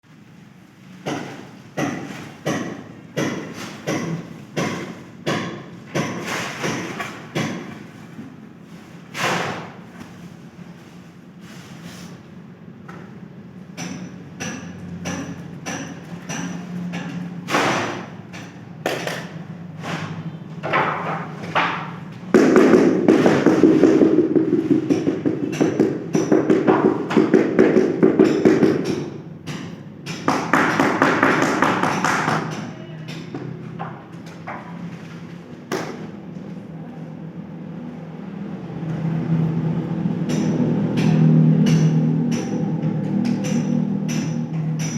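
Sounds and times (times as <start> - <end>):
sharp knocks: 20.6 - 32.7.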